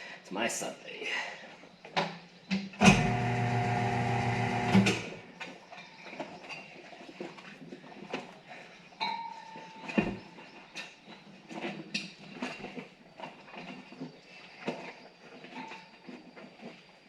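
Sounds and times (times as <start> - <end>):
steady motor hum: 2.8 - 5.4.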